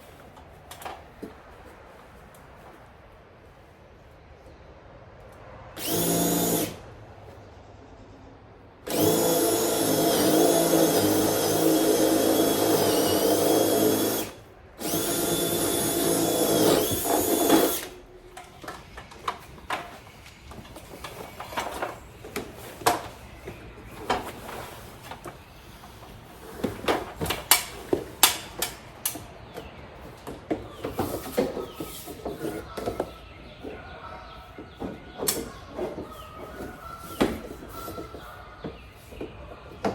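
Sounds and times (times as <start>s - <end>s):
power drill boring into wood: 5.8s - 6.8s, 8.9s - 18.0s.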